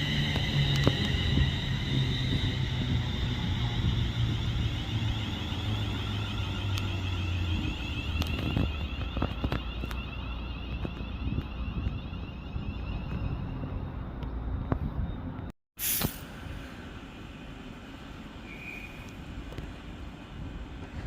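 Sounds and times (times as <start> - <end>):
high whine: 0.0 - 16.3
train engine hum: 0.0 - 21.0.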